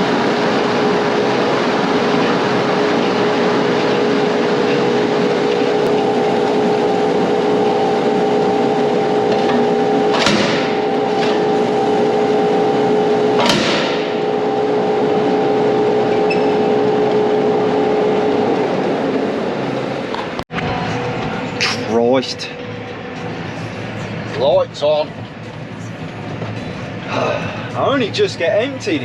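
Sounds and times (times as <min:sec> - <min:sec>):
tractor hum with whine: 0:00.0 - 0:29.0
sharp bangs: 0:09.2 - 0:11.8, 0:13.3 - 0:14.5.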